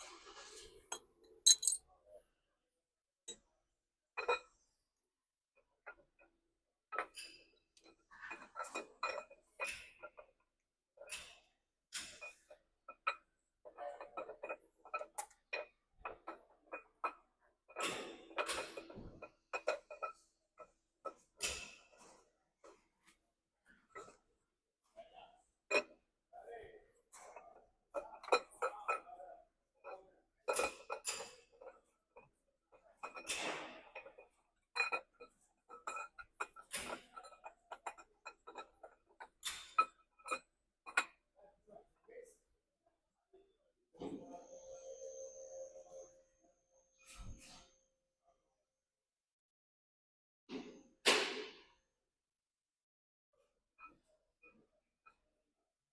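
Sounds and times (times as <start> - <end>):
metal tools clinking: 1.5 - 1.8.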